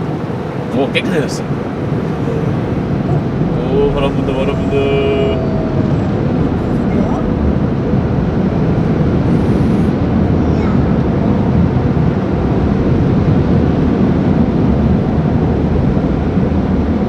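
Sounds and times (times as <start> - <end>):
car wash air dryers blowing: 0.0 - 10.2.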